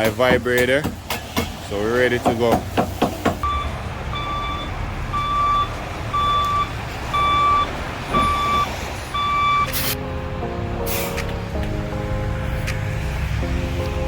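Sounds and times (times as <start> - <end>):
engine rumble: 0.5 - 14.0
reversing alarm beeping: 3.4 - 10.0.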